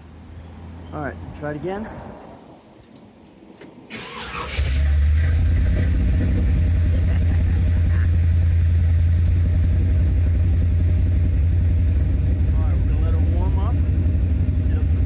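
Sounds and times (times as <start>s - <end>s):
car engine starting and idling: 3.9s - 15.0s.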